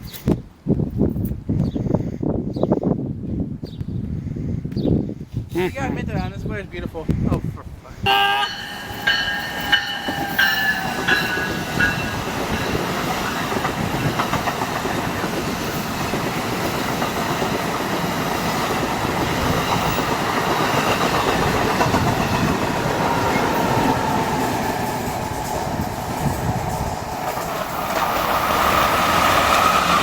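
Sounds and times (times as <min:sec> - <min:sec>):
passenger train rumbling past: 0:08.0 - 0:30.0
wheels clattering over rail joints: 0:08.4 - 0:30.0.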